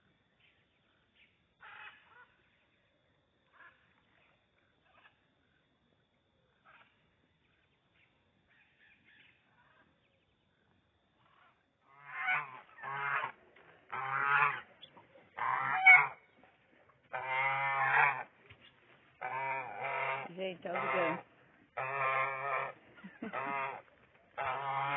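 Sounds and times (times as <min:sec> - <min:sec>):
goose honking: 0:01.6 - 0:02.3, 0:11.2 - 0:16.4, 0:17.1 - 0:18.4, 0:19.2 - 0:24.9.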